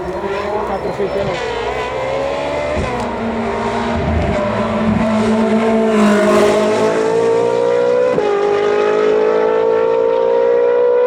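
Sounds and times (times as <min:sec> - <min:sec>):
race car engine accelerating: 0:00.0 - 0:11.0.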